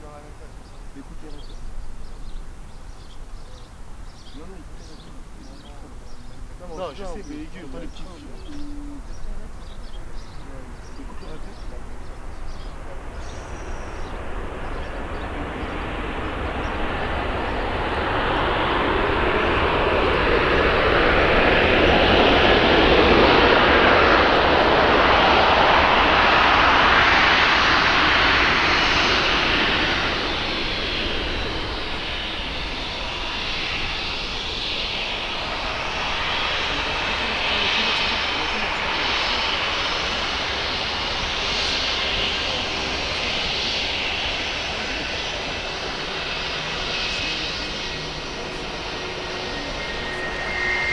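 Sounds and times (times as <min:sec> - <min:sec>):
aircraft engines passing: 0:00.0 - 0:50.9
thin high whine: 0:28.6 - 0:50.9.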